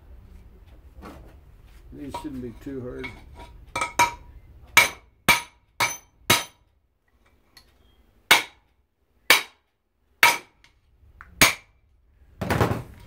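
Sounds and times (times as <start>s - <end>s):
hammer striking metal: 3.0s - 6.6s, 8.3s - 8.6s, 9.3s - 9.6s, 10.2s - 10.6s, 11.4s - 11.7s.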